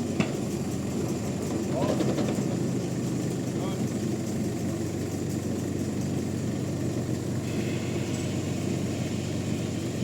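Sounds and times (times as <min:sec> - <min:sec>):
heavy engine humming: 0:00.0 - 0:10.0.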